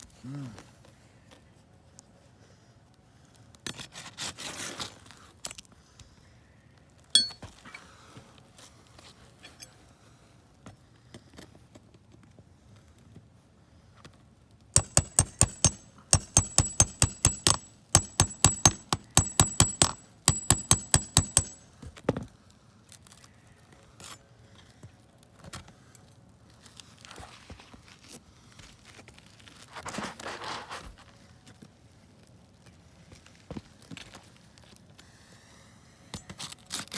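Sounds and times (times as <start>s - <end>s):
hammer driving nails: 14.8s - 21.7s
scraping and handling shingles: 28.9s - 31.0s.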